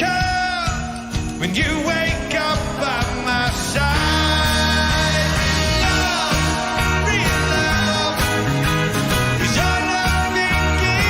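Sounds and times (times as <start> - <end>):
rock band playing live: 0.0 - 11.0
heavy bass line: 3.5 - 11.0.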